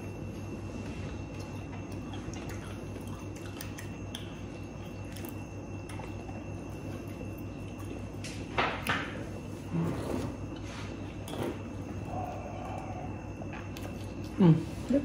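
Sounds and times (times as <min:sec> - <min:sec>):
people chewing food: 0:00.0 - 0:15.0.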